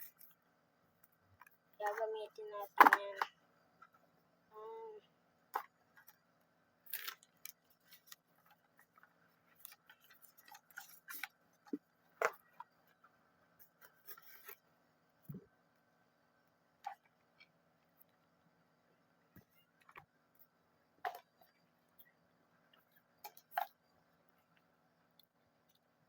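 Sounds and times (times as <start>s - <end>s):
box and accessories being handled: 6.9s - 14.7s.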